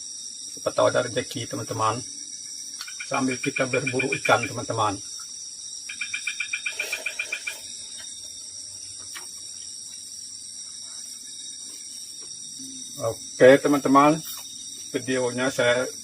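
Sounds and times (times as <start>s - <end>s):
chorus of night insects: 0.0s - 16.0s
rapid run of animal chirps: 5.9s - 7.8s.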